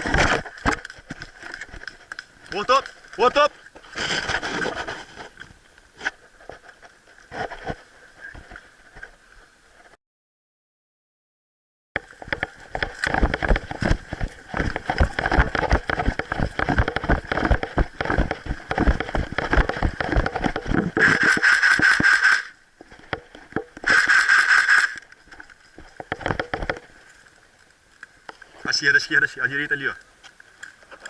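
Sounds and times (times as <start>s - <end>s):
knocks and rustling in brush: 0.0s - 9.1s, 12.0s - 22.2s.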